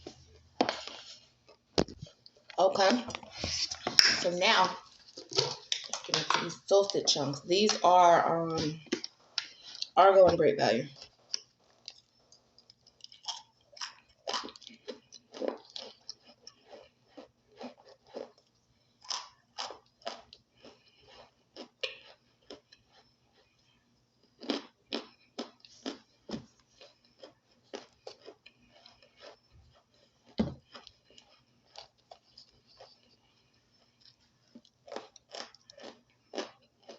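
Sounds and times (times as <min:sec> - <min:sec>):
person chewing crunchy food: 0:00.0 - 0:10.0, 0:10.9 - 0:36.9.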